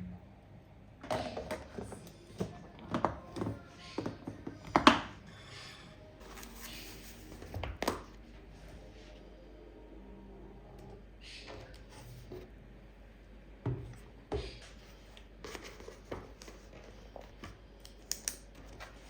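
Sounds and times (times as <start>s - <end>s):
dishes knocking and tapping: 1.1s - 5.1s.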